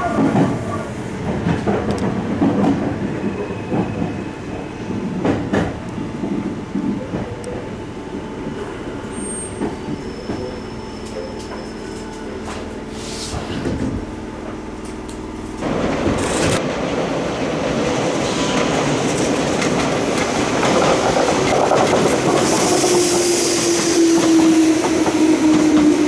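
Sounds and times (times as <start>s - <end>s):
train running rumble: 0.0s - 4.3s, 9.6s - 26.0s.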